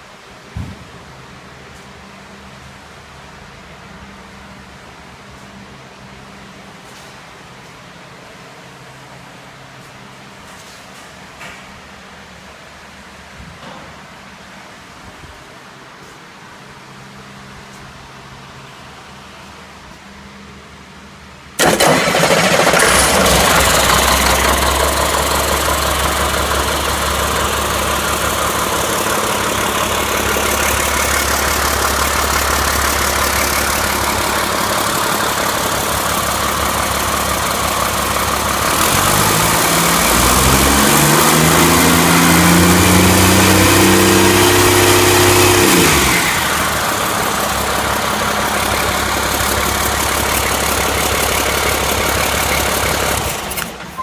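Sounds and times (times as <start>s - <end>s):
diesel engine starting and idling: 21.4s - 54.0s
diesel engine revving: 21.6s - 54.0s.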